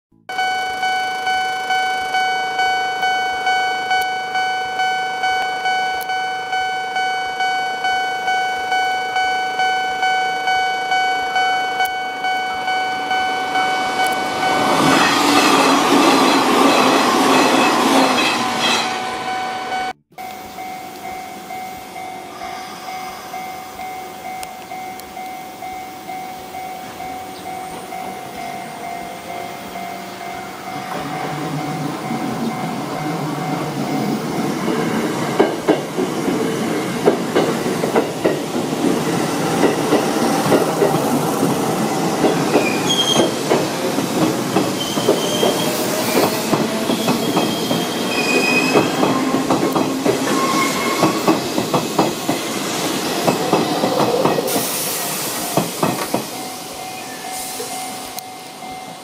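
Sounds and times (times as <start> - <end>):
train wheels clacking over rail joints: 30.9 - 56.5
wheel squeals: 42.2 - 58.0.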